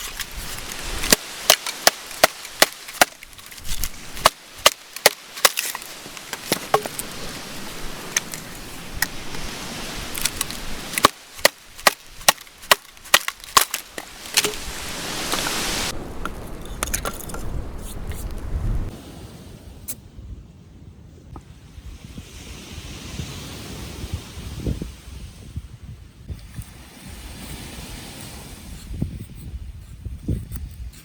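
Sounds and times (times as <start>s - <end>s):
wooden snaps and cracks: 0.0s - 7.3s, 8.0s - 9.4s, 10.1s - 14.7s
steady hiss: 13.8s - 18.9s.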